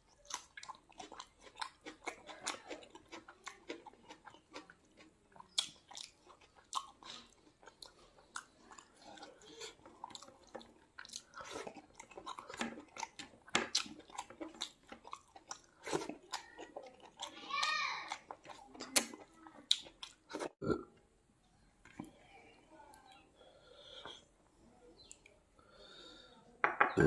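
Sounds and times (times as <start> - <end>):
man chewing food: 0.0 - 20.9, 22.9 - 24.4.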